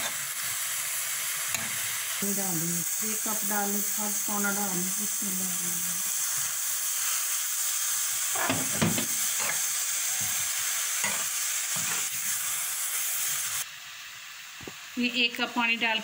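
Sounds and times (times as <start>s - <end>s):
chicken sizzling in hot oil: 0.0s - 16.0s
metal spoon scraping pan: 8.3s - 10.3s, 11.0s - 12.2s.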